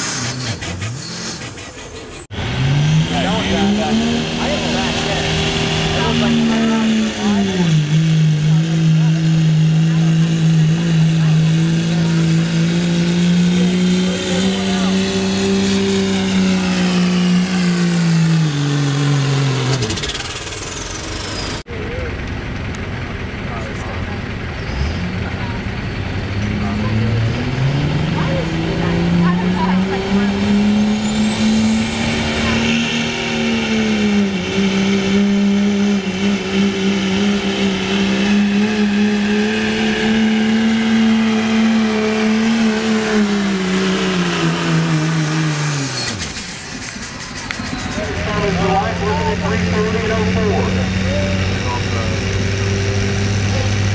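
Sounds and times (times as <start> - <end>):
diesel truck engine at full throttle: 0.0 - 53.9
turbocharger whistle: 27.7 - 52.2.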